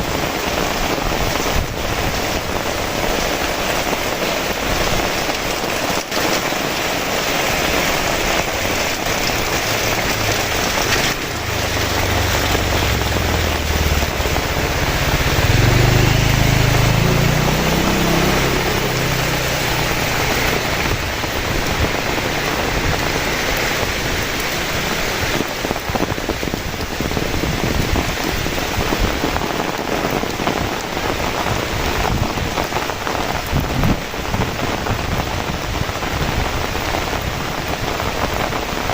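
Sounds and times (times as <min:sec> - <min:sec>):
heavy rain falling: 0:00.0 - 0:38.9
deep low rumble: 0:08.0 - 0:29.4.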